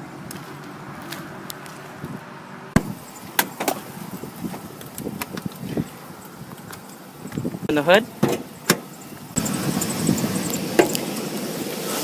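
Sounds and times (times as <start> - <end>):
engine idling: 6.9 - 12.0.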